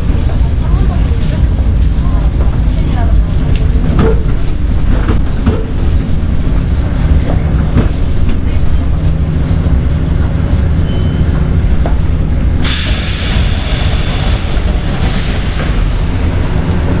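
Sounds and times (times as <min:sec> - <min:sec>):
electric train rumble: 0:00.0 - 0:17.0
loud air hiss: 0:12.6 - 0:16.1.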